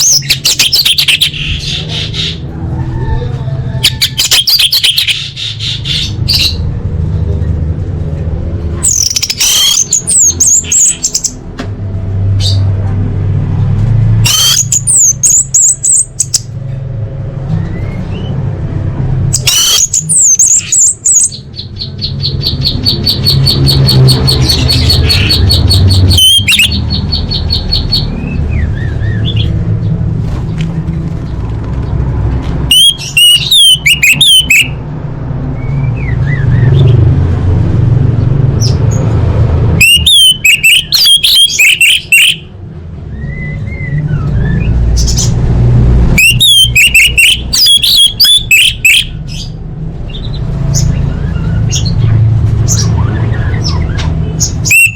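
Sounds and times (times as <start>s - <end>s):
bird trilling and warbling: 0.0s - 6.7s, 8.7s - 11.4s, 14.1s - 16.6s, 19.3s - 34.8s, 39.8s - 42.5s, 46.2s - 54.9s.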